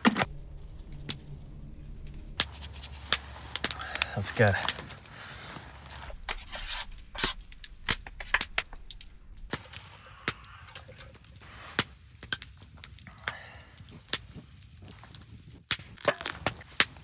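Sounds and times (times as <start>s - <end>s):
campfire crackling: 2.3s - 6.2s, 7.3s - 17.0s
sharp pops from fire: 2.4s - 17.0s.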